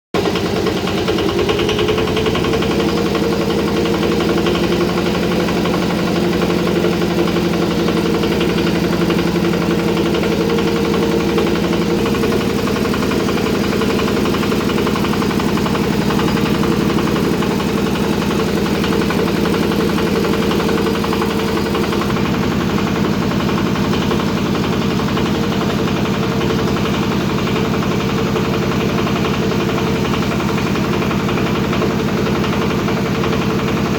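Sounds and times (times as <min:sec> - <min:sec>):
diesel engine running steadily: 0:00.2 - 0:33.9.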